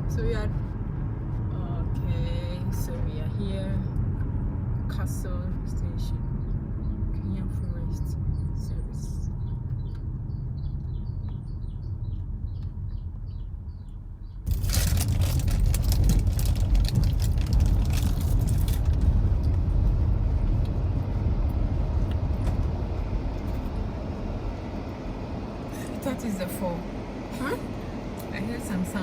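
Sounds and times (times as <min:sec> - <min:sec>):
low vehicle rumble: 0:00.0 - 0:29.0
small bird chirping: 0:08.3 - 0:14.5.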